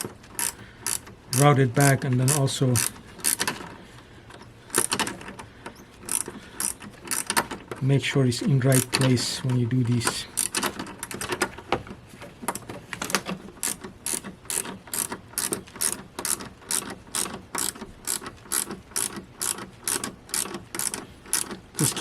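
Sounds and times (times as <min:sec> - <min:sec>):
ratchet wrench clicking: 0:00.0 - 0:03.7, 0:04.7 - 0:05.1, 0:06.0 - 0:07.6, 0:10.3 - 0:11.2, 0:13.6 - 0:21.9.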